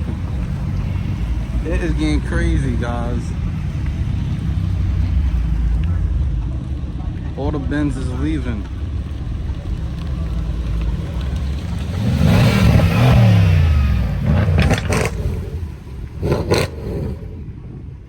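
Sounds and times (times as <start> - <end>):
cars driving off: 0.0 - 18.0
car engine revving past: 10.6 - 17.5.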